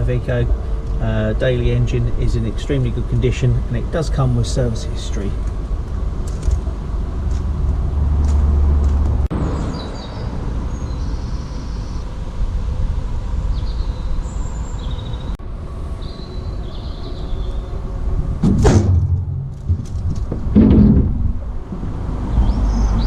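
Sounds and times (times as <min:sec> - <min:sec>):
wind rumbling on microphone: 0:05.4 - 0:23.0
vehicle door shutting bang: 0:18.4 - 0:21.4.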